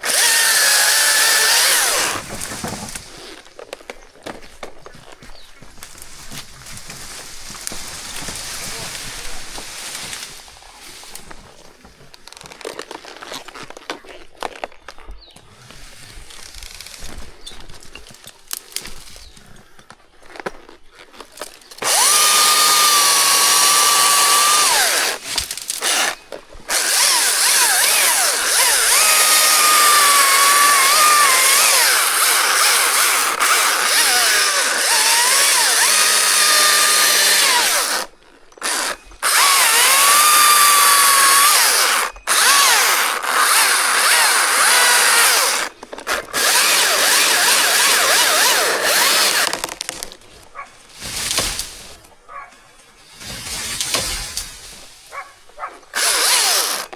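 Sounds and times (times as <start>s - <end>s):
chainsaw cutting wood: 0.0s - 4.4s, 21.7s - 52.1s, 53.2s - 56.9s.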